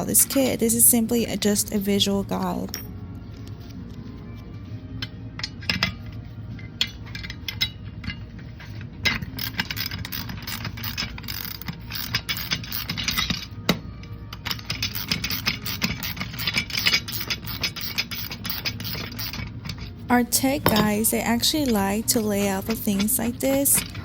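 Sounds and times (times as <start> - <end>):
background music: 0.0 - 24.0
metal parts clinking: 5.0 - 24.0.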